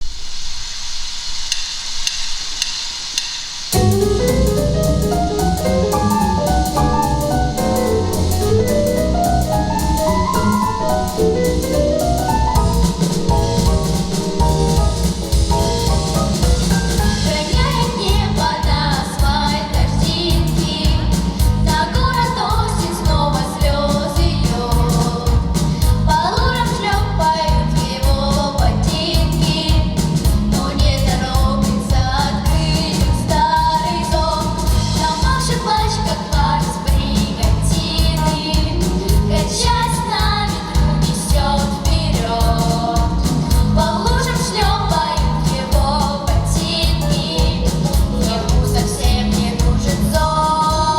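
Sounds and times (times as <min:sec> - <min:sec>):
backing track with steady beat: 0:02.0 - 0:50.9
women singing: 0:16.9 - 0:50.9.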